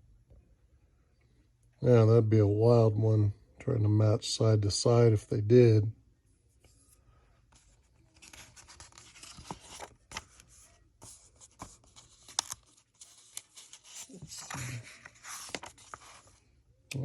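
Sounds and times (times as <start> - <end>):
magazine pages rustling: 7.5 - 16.6.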